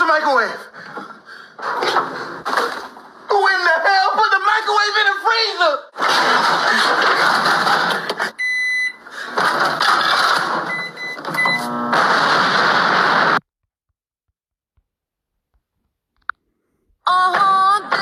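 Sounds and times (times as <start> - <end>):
microwave oven beeps: 8.4 - 9.1, 10.6 - 12.0.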